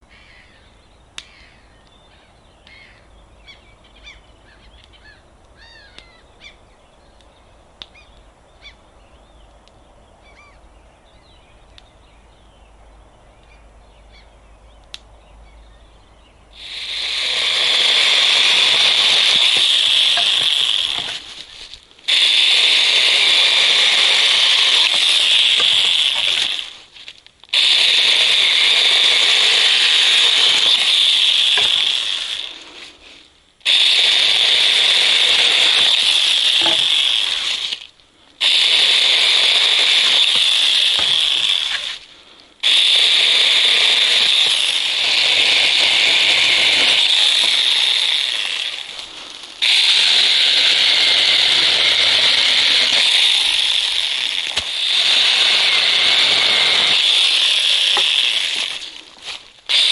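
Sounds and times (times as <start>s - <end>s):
birds chirping: 0.0s - 16.7s
sharp clicks: 33.6s - 59.0s.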